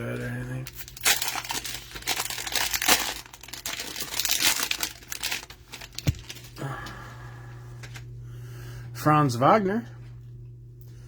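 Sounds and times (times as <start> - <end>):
steady low hum: 0.0 - 11.0
packaging crinkling: 0.2 - 6.6.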